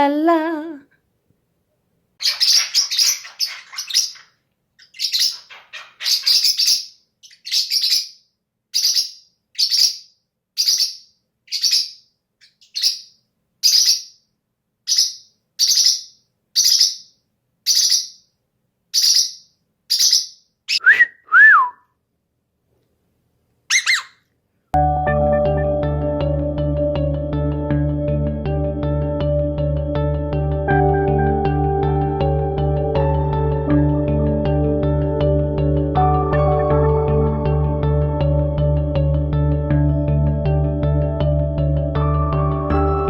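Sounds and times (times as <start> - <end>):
parrot chirping: 2.2 - 14.2, 14.9 - 18.3, 18.9 - 20.9, 23.7 - 24.3.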